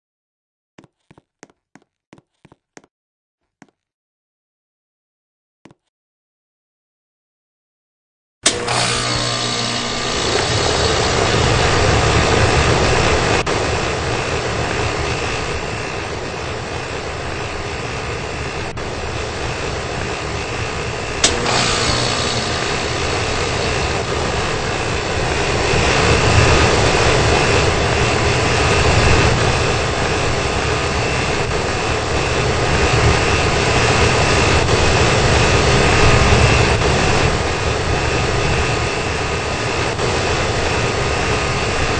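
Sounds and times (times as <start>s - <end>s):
air conditioner running: 8.4s - 41.9s
sharp click: 21.2s - 22.8s.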